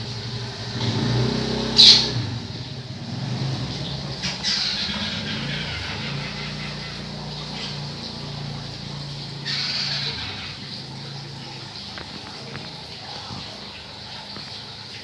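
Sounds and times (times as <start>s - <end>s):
bird squawking: 1.8s - 2.2s, 4.1s - 8.6s, 9.3s - 11.2s.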